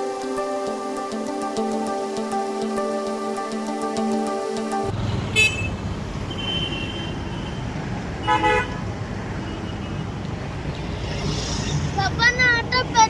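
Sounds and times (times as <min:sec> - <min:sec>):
road traffic: 0:04.7 - 0:13.0
vehicle horn toots: 0:04.9 - 0:08.8
wind and engine rumble: 0:07.2 - 0:13.0.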